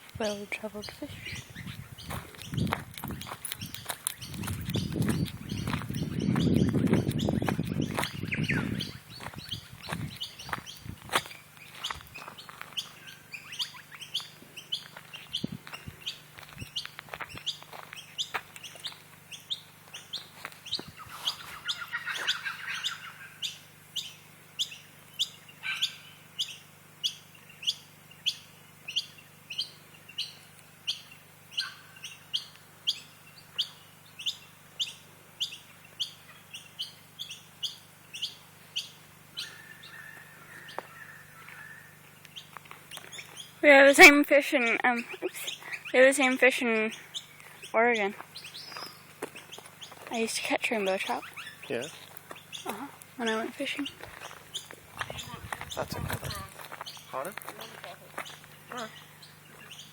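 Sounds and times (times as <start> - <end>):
birds chattering and calling: 0.0 - 59.9
bird repeating high chirp: 0.8 - 10.8, 45.0 - 57.1.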